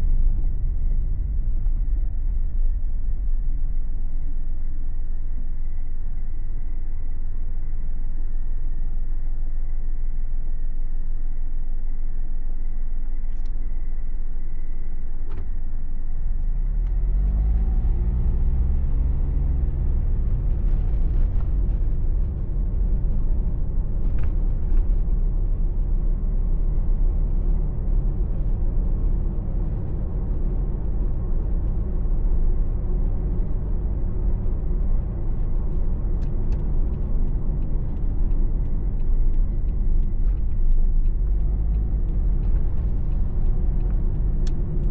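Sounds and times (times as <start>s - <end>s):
car engine accelerating: 16.4s - 44.9s
tyre and road rumble: 16.6s - 44.9s.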